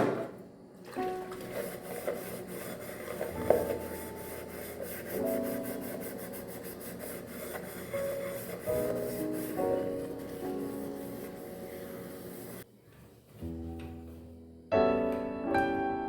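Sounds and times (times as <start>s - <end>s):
soft background music: 0.9s - 12.7s, 13.3s - 16.0s
rubbing strokes: 1.3s - 12.7s.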